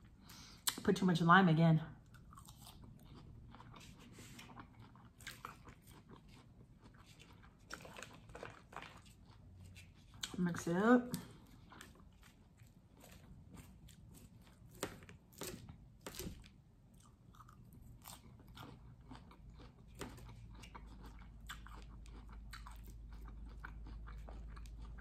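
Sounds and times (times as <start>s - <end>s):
chewing crunchy salad: 2.0s - 25.0s.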